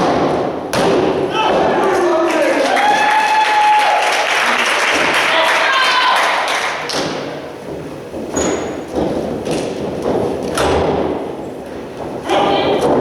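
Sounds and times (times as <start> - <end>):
arena crowd noise: 1.2 - 8.1.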